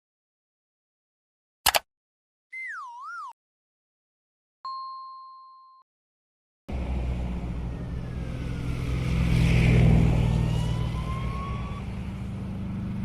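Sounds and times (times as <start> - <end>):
vehicle engine running: 6.7 - 13.0.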